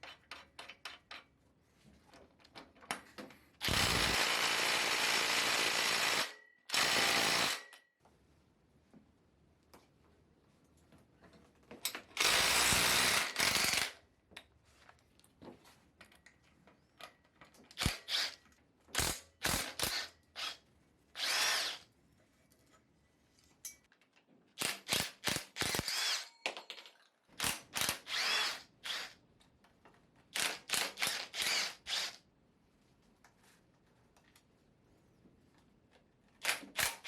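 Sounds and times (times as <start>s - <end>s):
power drill bursts: 3.6s - 7.8s, 12.2s - 13.9s, 21.2s - 21.8s, 25.6s - 26.3s, 27.8s - 29.2s, 30.4s - 32.2s.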